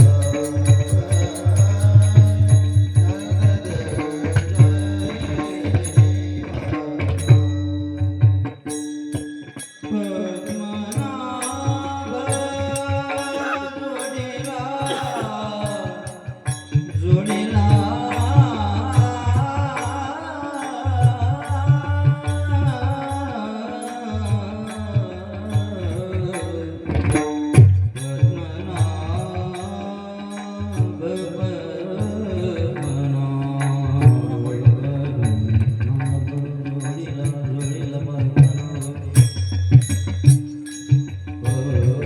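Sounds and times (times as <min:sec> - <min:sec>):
devotional singing: 0:00.0 - 0:08.0, 0:09.8 - 0:27.4, 0:28.0 - 0:39.2
small cymbals: 0:00.0 - 0:42.0
hand drum strokes: 0:12.7 - 0:16.1.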